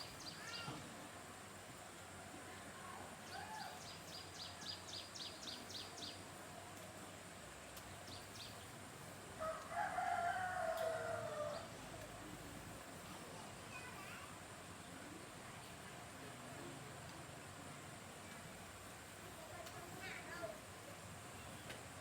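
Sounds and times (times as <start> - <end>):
rooster crowing: 9.4 - 11.7.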